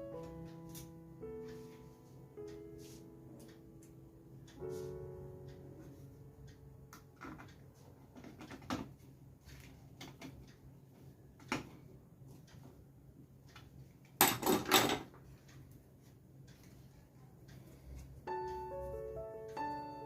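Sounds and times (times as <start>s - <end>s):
soft piano music: 0.0s - 10.0s, 17.7s - 20.0s.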